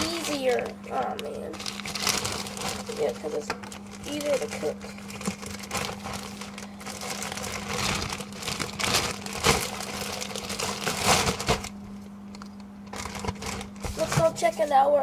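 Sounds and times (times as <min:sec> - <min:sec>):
packaging crinkling: 0:00.0 - 0:14.6
steady low hum: 0:00.0 - 0:15.0.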